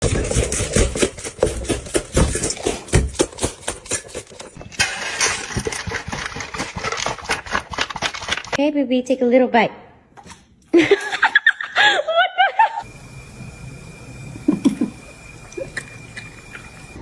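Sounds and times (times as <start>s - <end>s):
dog eating noisily: 0.0s - 4.6s, 5.2s - 8.6s.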